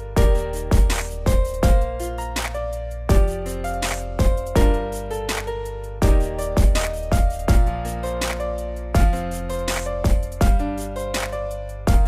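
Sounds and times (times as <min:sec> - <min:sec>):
drum beat: 0:00.2 - 0:02.1, 0:03.1 - 0:05.0, 0:06.0 - 0:07.8, 0:09.0 - 0:10.8.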